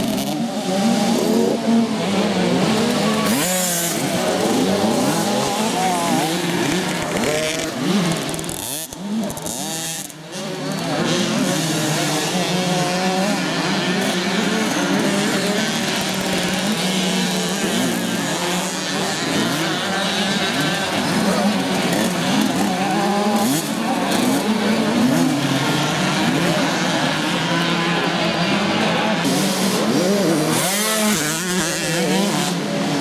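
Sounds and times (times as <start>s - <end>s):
motocross bikes racing: 0.0s - 33.0s.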